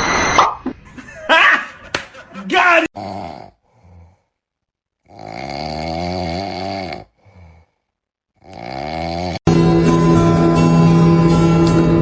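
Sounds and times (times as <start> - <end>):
pet snoring: 3.0 - 4.2, 5.0 - 7.8, 8.4 - 9.5
faint breath: 7.1 - 8.0.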